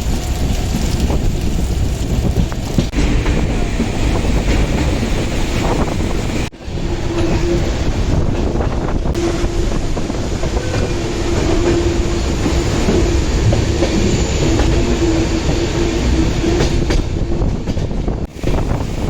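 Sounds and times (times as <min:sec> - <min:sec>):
train wheels clattering on rails: 0:00.0 - 0:19.0.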